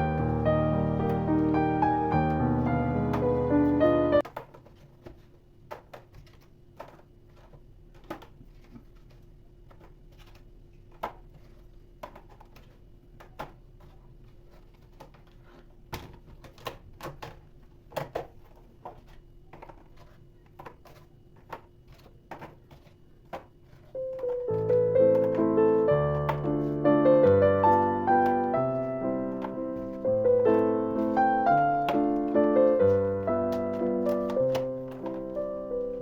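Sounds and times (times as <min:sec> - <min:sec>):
piano music: 0:00.0 - 0:04.2, 0:24.0 - 0:36.0.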